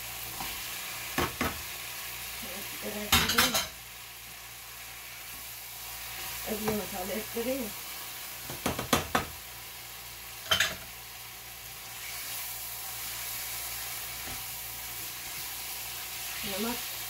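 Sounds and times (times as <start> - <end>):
chicken sizzling in a pan: 0.0 - 17.0
spatula knocking against pan: 8.5 - 9.3.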